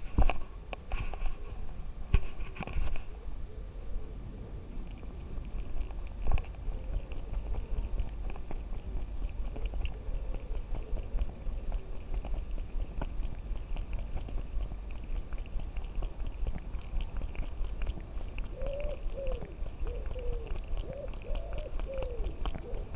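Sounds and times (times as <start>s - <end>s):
rubbing on camera: 0.0s - 3.1s.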